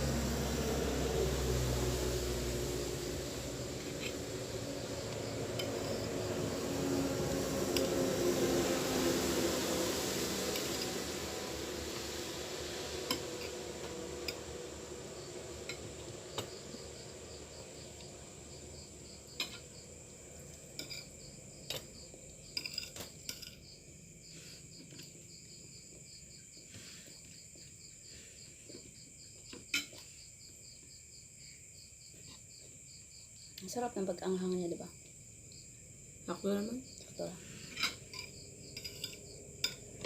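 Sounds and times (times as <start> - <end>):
crickets chirping: 0.0 - 40.0.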